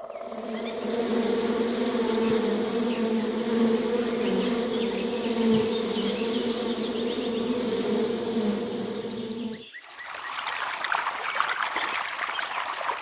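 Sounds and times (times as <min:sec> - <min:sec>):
bee buzzing: 0:00.5 - 0:10.2.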